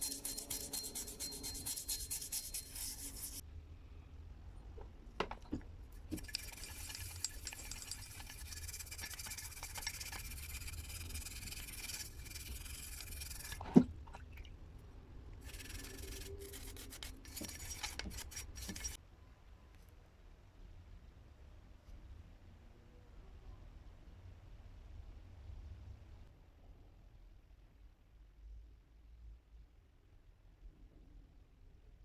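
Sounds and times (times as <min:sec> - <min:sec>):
abrasive rubbing on axe: 0:00.0 - 0:03.4.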